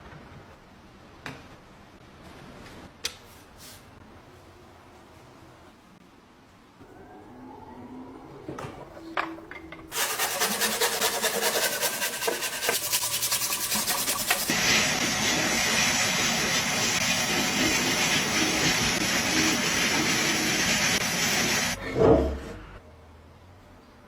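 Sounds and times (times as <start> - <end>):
abrasive rubbing strokes: 9.9 - 21.8.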